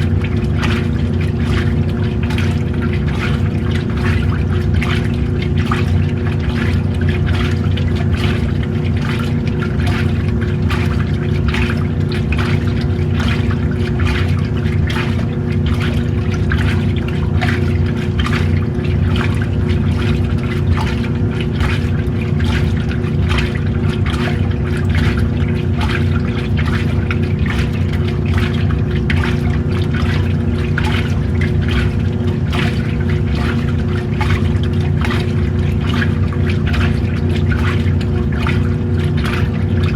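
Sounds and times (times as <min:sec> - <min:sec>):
washing machine motor hum: 0:00.0 - 0:39.9
water sloshing in washing tub: 0:00.0 - 0:39.9.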